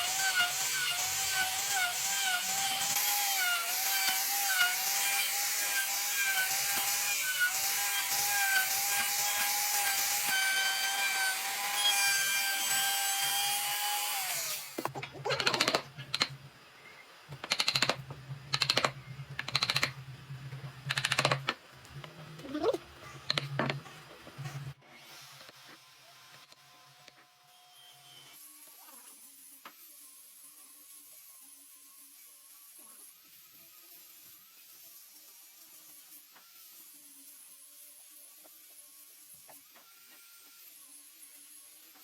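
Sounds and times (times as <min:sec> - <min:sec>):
power tool whining on wood: 0:00.0 - 0:15.8, 0:24.8 - 0:42.0.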